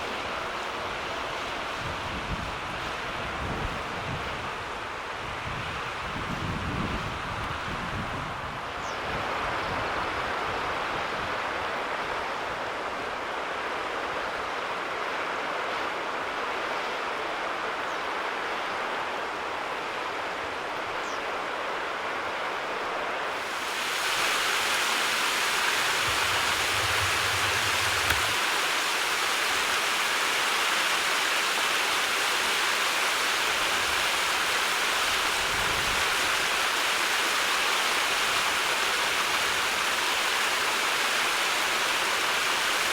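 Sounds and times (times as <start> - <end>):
stream water running: 23.2 - 42.9.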